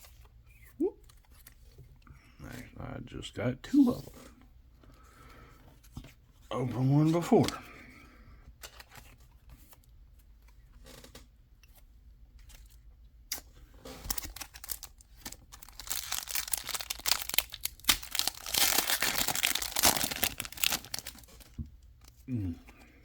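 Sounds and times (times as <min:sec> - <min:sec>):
foil wrapper crinkling and tearing: 0:13.3 - 0:22.2.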